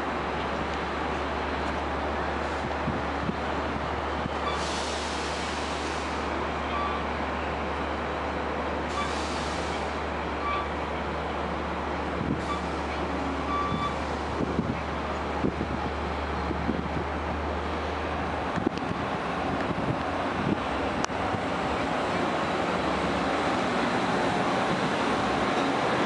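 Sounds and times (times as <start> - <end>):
train rumbling: 0.0 - 26.0
air brake hiss: 4.5 - 6.3, 8.9 - 10.0.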